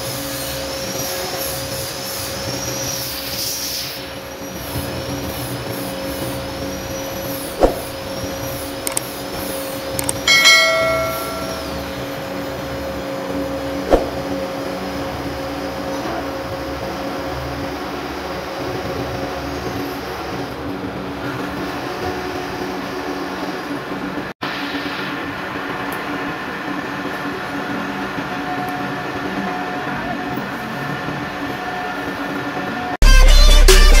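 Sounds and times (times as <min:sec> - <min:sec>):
sharp clicks: 0:10.0 - 0:11.5
metal struck ringing: 0:10.3 - 0:12.1.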